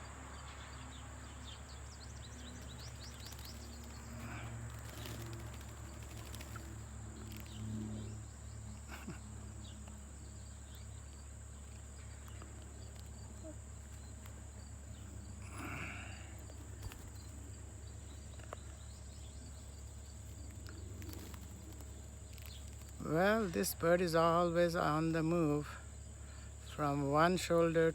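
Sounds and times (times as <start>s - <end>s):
low hum: 0.0s - 27.9s
faint ticks: 2.5s - 7.6s.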